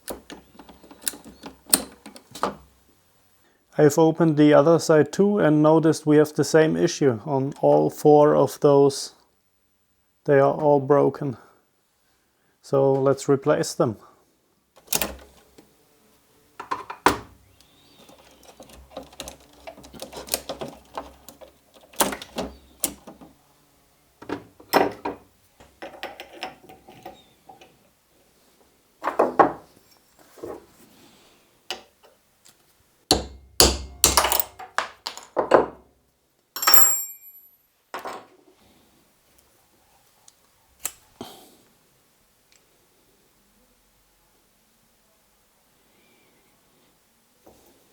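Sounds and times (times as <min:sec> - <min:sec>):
small parts and tools knocking: 0:00.0 - 0:02.6, 0:16.6 - 0:23.3, 0:24.2 - 0:27.8, 0:33.1 - 0:35.8, 0:36.6 - 0:37.4
ringing metal clink: 0:36.6 - 0:37.5.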